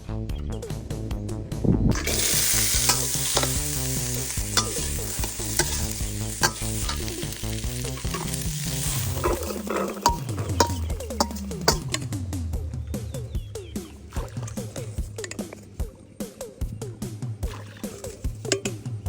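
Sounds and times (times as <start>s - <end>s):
food sizzling in a pan: 2.0s - 12.1s
spatula knocking and scraping: 4.5s - 12.2s, 17.9s - 18.9s.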